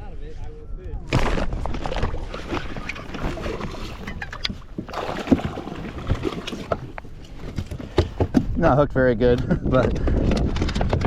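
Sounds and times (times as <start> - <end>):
wind buffeting microphone: 0.0 - 11.0
water splashing around kayak: 1.1 - 8.8.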